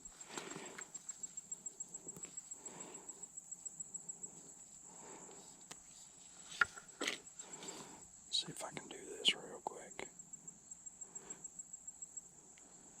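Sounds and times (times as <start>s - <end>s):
faint rustling: 0.0s - 9.1s
insect trilling: 0.0s - 13.0s.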